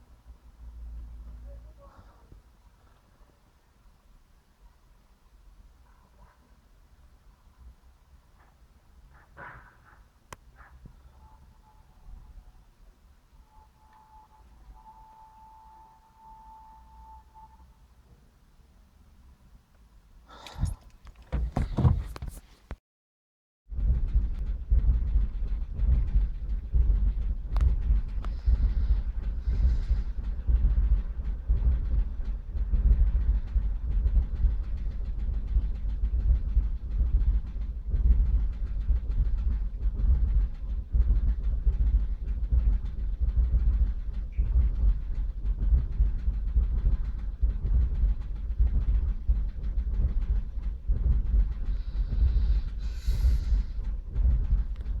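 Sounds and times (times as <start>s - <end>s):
car engine idling with misfire: 20.3s - 22.5s, 24.4s - 55.0s.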